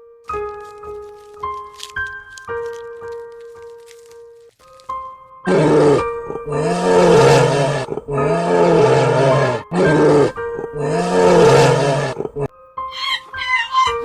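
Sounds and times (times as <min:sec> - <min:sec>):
background music: 0:00.0 - 0:14.0
animal calling loudly: 0:05.5 - 0:14.0.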